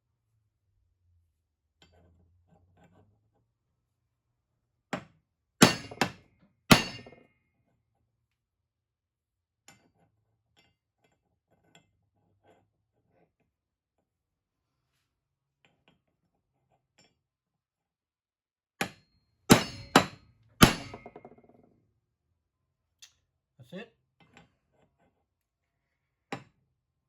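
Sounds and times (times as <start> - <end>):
ringing metal-on-metal blows: 5.6 - 6.1, 6.7 - 7.2, 19.5 - 21.2.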